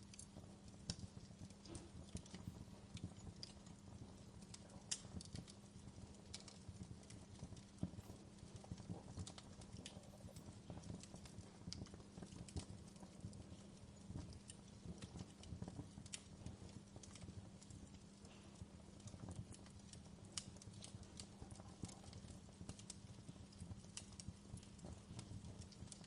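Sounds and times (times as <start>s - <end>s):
low steady hum: 0.0s - 26.0s
wood fire crackling and popping: 0.0s - 26.0s.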